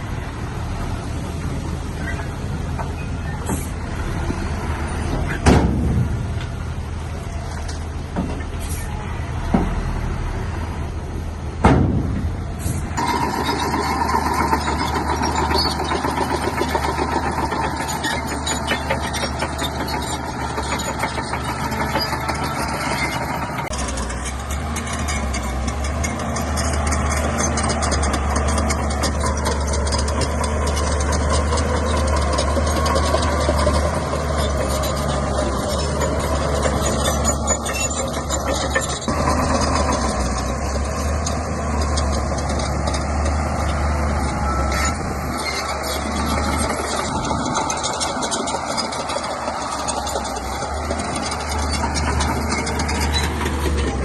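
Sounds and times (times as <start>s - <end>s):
bulldozer diesel engine running: 0.0s - 54.0s
loud sharp knock: 11.6s - 12.2s.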